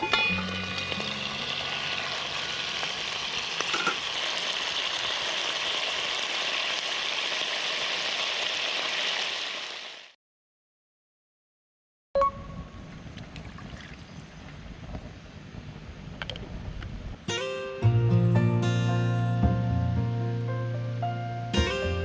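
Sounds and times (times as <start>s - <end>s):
meat patties sizzling: 0.0s - 10.2s.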